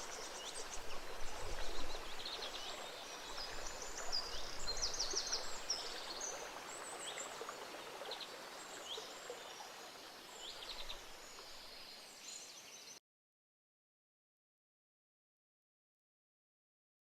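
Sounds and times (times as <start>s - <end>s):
stream babbling: 0.0s - 12.5s
songbirds chirping: 0.0s - 13.0s.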